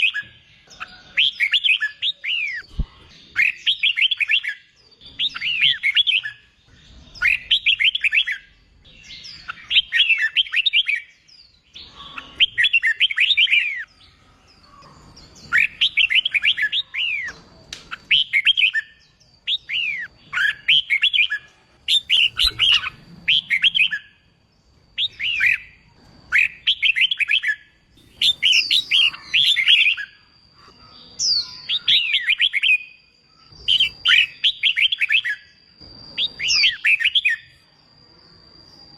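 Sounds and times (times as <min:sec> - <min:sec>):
bird singing warbled phrases: 0:00.0 - 0:37.7.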